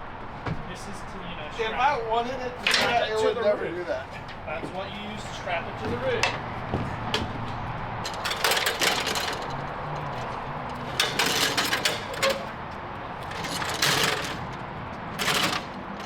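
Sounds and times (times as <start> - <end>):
metallic clicking and rattling: 7.1 - 16.0.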